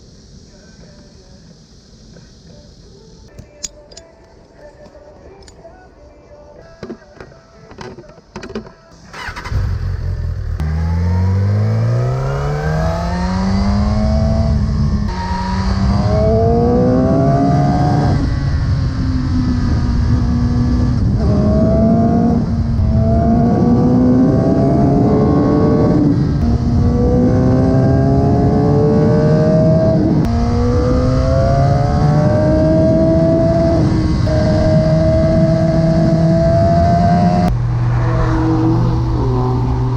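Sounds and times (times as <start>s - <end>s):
motorcycle engine revving through gears: 9.1s - 39.9s.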